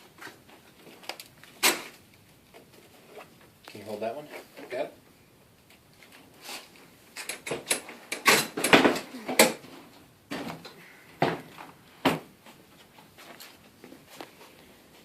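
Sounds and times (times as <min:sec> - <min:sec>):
garage door parts clattering: 0:07.2 - 0:09.7.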